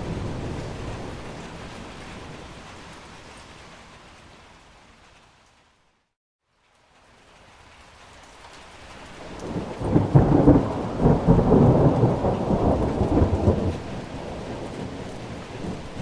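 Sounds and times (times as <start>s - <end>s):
rolling thunder: 0.0s - 2.6s, 9.4s - 16.0s
rain hiss: 0.0s - 16.0s.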